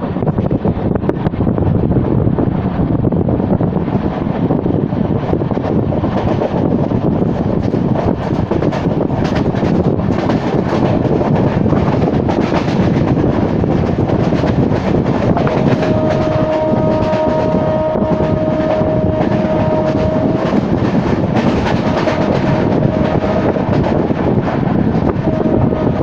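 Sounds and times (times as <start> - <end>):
train rumble and rushing wind: 0.0 - 26.0
steady tone: 15.4 - 26.0.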